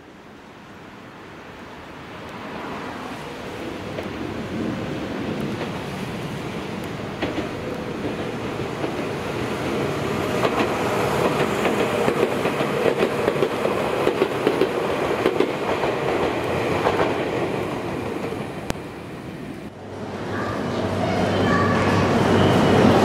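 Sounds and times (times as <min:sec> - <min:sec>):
electric train running past: 0:00.1 - 0:23.0
wheels clacking over rails: 0:06.8 - 0:18.7.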